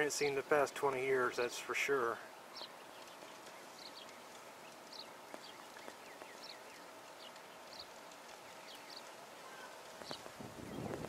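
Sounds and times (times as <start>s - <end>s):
faint bird chirps: 2.3s - 11.0s.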